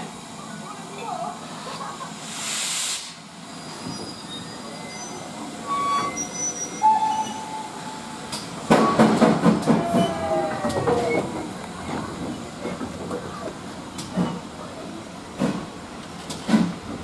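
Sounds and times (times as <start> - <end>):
train wheels squealing: 3.5 - 8.2
carriages clanking and knocking: 8.2 - 17.0.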